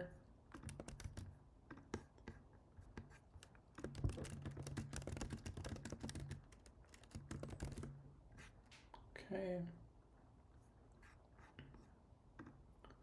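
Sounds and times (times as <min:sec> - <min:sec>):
typing on computer keyboard: 0:00.5 - 0:01.4, 0:03.3 - 0:08.0.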